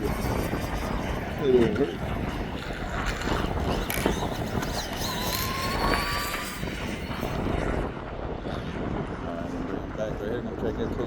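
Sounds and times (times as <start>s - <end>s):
wind buffeting microphone: 0.0s - 11.0s
electric motor whine: 3.4s - 7.4s.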